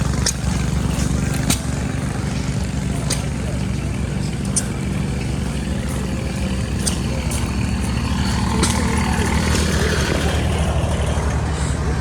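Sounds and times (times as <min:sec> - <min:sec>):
sharp clicks: 0:00.0 - 0:01.9
old gas engines pulsing: 0:00.0 - 0:12.0.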